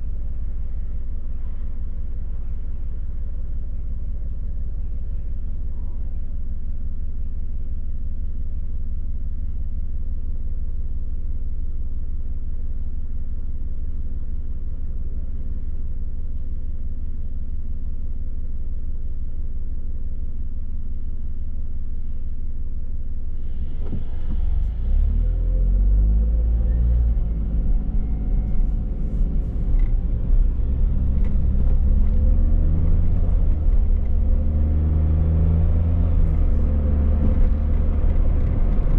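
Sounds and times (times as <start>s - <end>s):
car engine and road noise: 20.8s - 38.9s.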